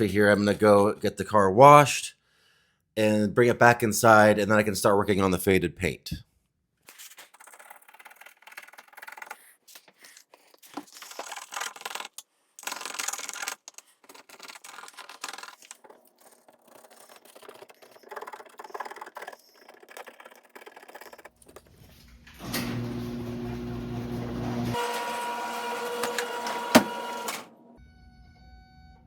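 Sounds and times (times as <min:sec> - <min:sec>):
plastic tool scraping car paint: 0:07.0 - 0:21.9.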